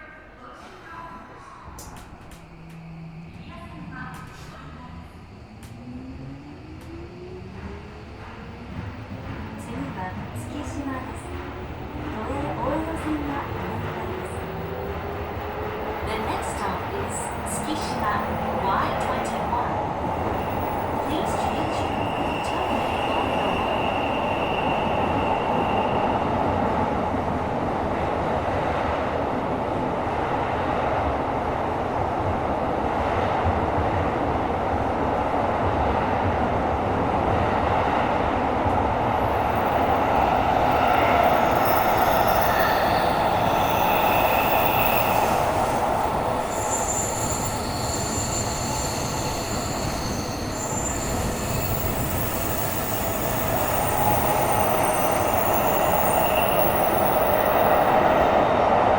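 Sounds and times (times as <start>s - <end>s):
subway train rumbling in tunnel: 0.0s - 58.9s
high-pitched wheel squeal: 39.2s - 58.5s.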